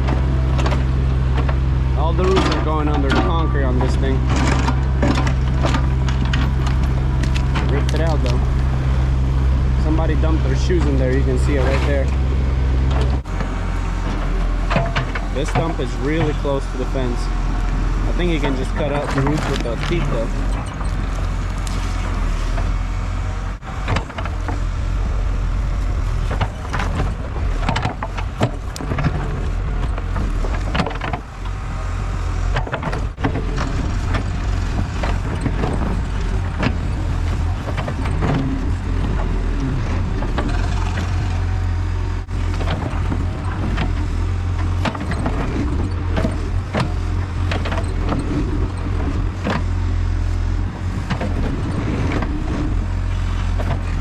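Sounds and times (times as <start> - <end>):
diesel excavator running: 0.0 - 54.0
bucket teeth clanking and scraping: 18.1 - 22.7, 32.5 - 54.0.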